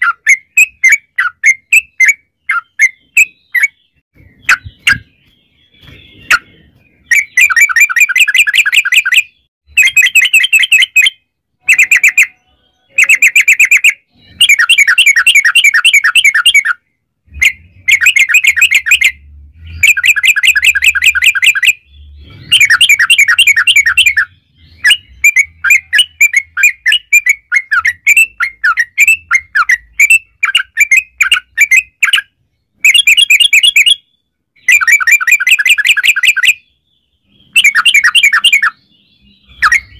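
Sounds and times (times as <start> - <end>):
bulbul singing bubbly phrases: 9.7 - 31.9.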